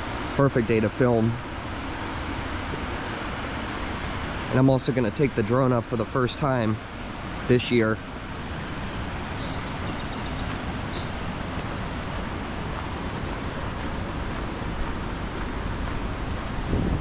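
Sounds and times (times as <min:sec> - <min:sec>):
outdoor rushing noise: 0:06.5 - 0:17.0.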